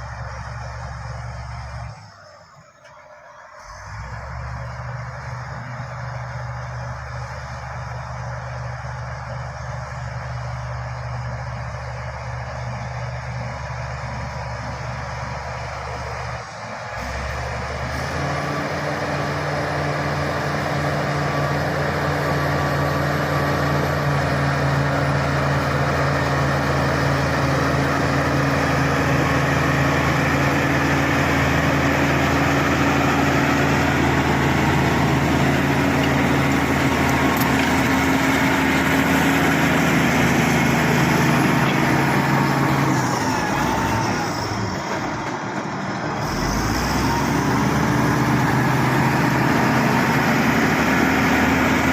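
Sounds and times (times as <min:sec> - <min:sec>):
bulldozer diesel engine running: 0:00.0 - 0:51.9.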